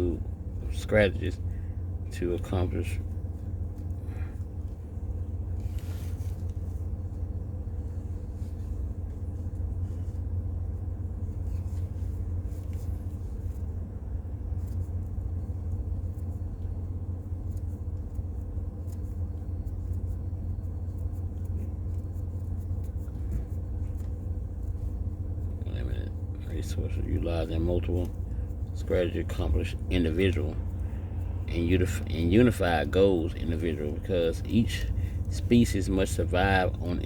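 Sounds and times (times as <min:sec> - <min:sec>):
faint humming tones: 0:00.0 - 0:37.0
steady low rumble: 0:00.0 - 0:37.0.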